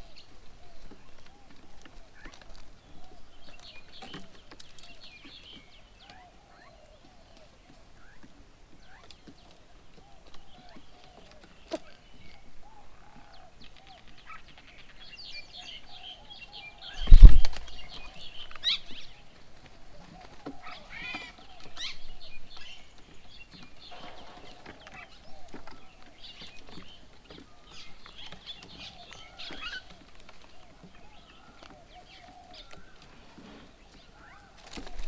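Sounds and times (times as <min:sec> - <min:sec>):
small birds chirping: 0:00.0 - 0:35.0
burst of wingbeats: 0:17.0 - 0:17.7.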